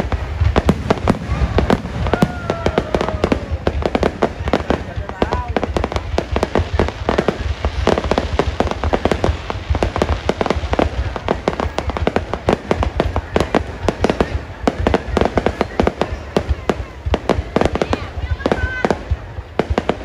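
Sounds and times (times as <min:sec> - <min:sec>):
fireworks bangs: 0:00.0 - 0:20.0.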